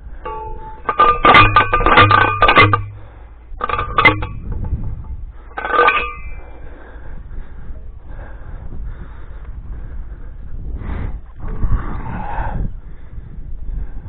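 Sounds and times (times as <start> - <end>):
post driver metallic clanks: 0.2 - 6.5.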